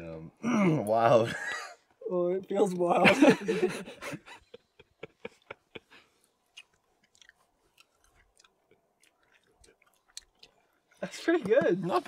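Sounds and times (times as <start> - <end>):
person chewing: 6.2 - 11.0.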